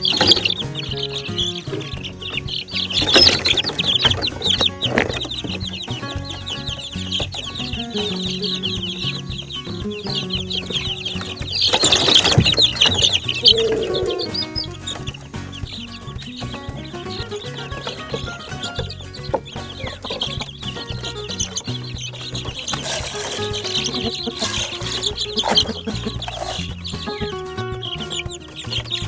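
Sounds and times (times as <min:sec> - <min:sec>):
background music: 0:00.0 - 0:29.0
chicks peeping: 0:00.0 - 0:29.0
rustling noise: 0:19.8 - 0:26.6.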